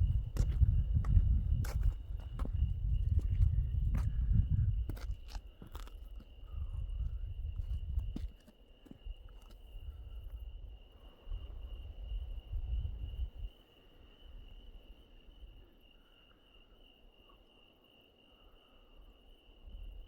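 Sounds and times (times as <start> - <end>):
low rumble: 0.0 - 4.9
crickets chirping: 0.0 - 20.0.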